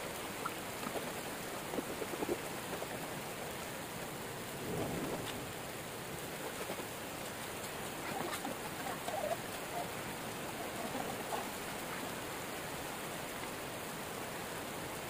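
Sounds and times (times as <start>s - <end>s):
heavy rain hissing: 0.0s - 15.0s
crackles: 4.4s - 9.8s.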